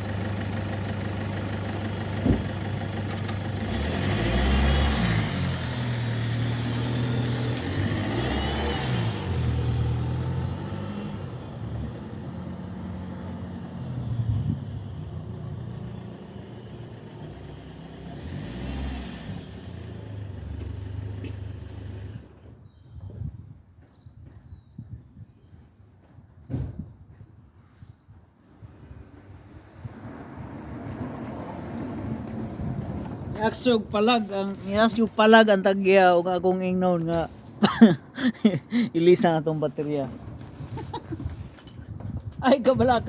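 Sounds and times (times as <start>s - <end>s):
car engine idling and revving: 0.0s - 22.3s, 28.8s - 43.0s.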